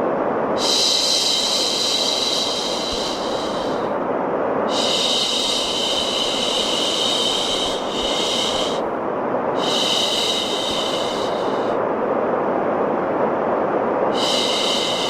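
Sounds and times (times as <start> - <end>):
white noise hiss: 0.0 - 15.0
person shushing: 4.7 - 8.8.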